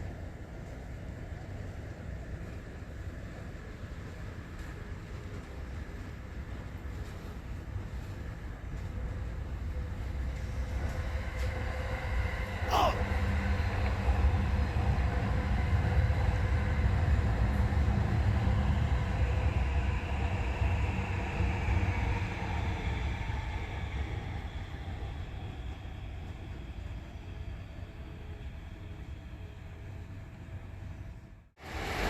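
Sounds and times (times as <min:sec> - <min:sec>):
electric train rumbling: 0:13.2 - 0:32.0.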